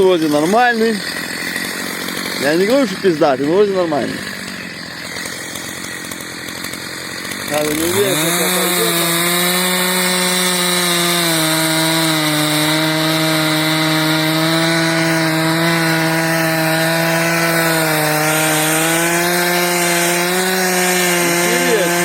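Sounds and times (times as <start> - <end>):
chainsaw cutting into tree trunk: 0.0 - 22.0.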